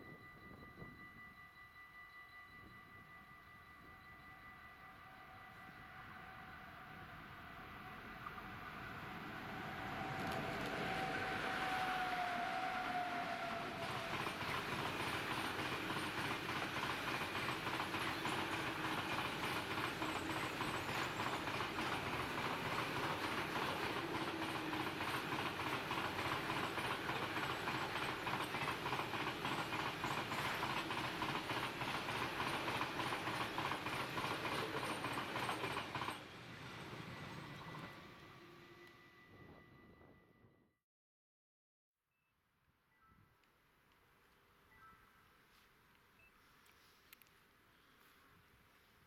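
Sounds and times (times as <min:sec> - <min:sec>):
train wheels clicking over rail joints: 0:09.8 - 0:37.9.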